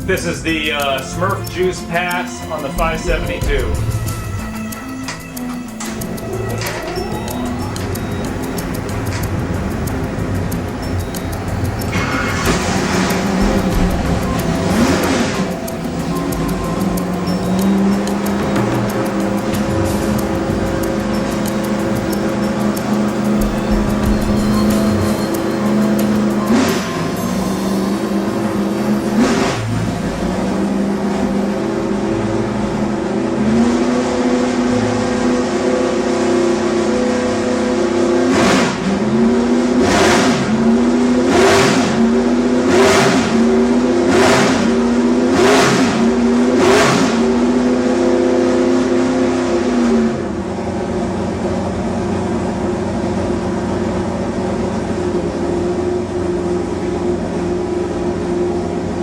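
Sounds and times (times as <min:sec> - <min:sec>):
engine running on dyno: 0:00.0 - 0:59.0.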